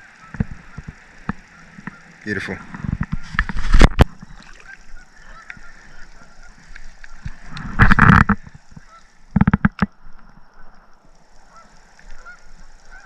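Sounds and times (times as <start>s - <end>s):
geese honking: 0.0s - 3.5s, 4.3s - 9.2s, 11.4s - 13.0s.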